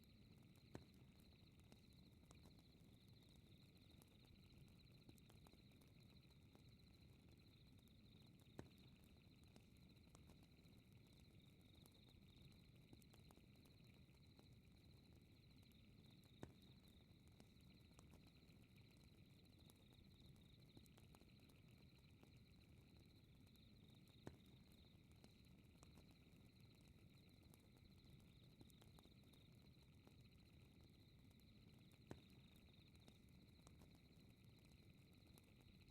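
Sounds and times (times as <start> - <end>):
fireplace crackling and popping: 0.0 - 35.9
night insects chirring: 0.1 - 35.9.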